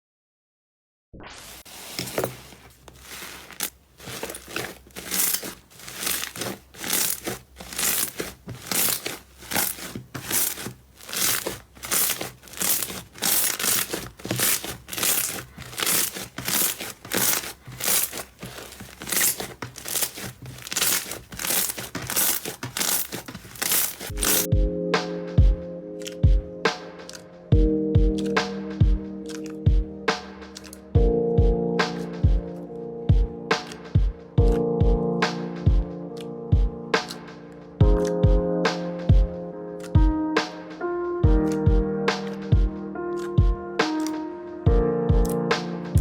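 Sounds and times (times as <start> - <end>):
slime squishing: 1.7 - 24.5, 29.3 - 29.6.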